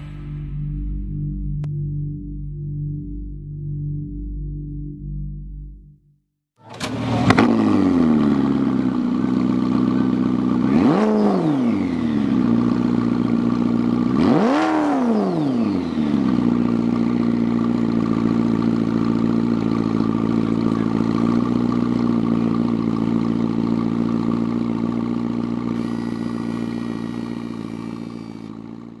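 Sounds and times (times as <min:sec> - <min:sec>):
car engine starting and revving: 0:06.6 - 0:29.0.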